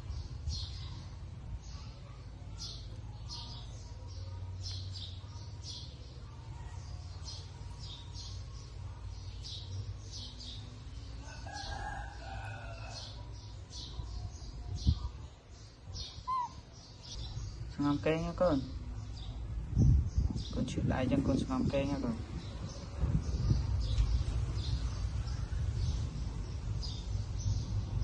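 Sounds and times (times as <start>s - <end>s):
small bird chirping: 0.0s - 11.6s, 13.1s - 28.0s
low rumble: 17.1s - 28.0s.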